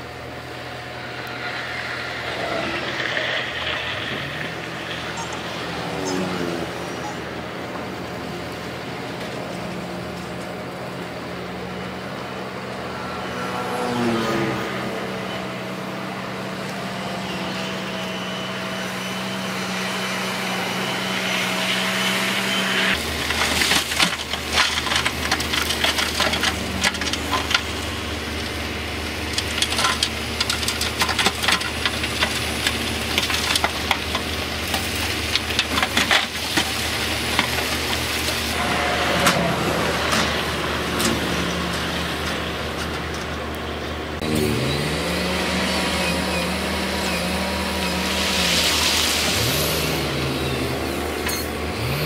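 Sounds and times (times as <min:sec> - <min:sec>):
diesel engine running: 0:00.0 - 0:52.0
rock cracking and clattering: 0:23.1 - 0:27.7.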